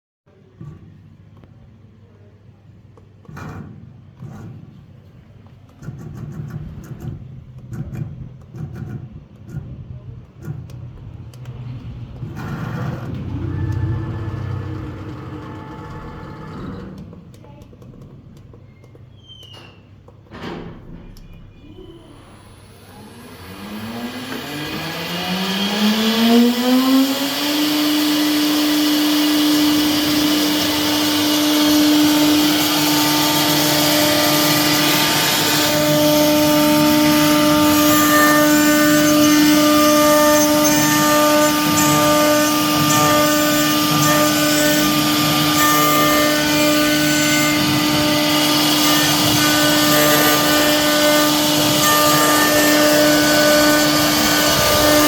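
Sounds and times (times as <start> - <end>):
router spindle whining: 10.7 - 17.5, 22.1 - 55.0.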